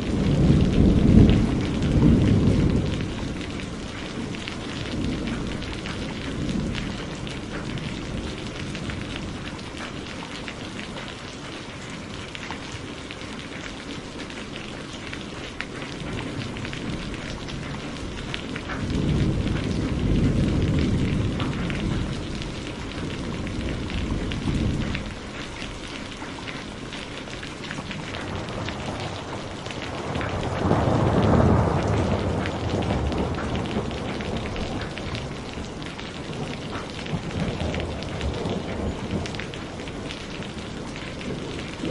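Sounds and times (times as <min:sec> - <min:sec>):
rain pattering: 0:00.0 - 0:41.9
thunder rumbling: 0:00.0 - 0:41.9.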